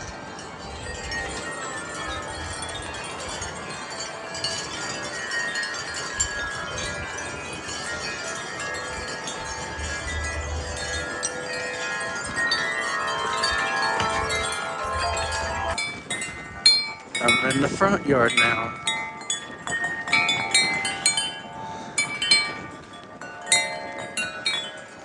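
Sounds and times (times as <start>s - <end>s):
wind chimes ringing: 0.0s - 25.0s
wind rumble on microphone: 0.0s - 25.0s.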